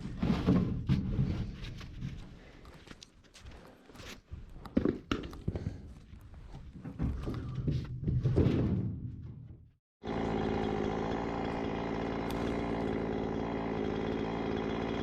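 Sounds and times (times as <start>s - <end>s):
knocks and rustling: 4.4s - 9.7s
chainsaw engine idling: 10.0s - 15.0s.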